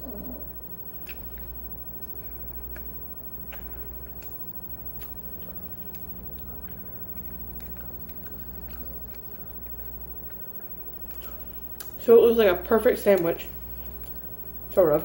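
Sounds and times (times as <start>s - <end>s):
person chewing: 0.8s - 12.0s, 13.6s - 14.4s.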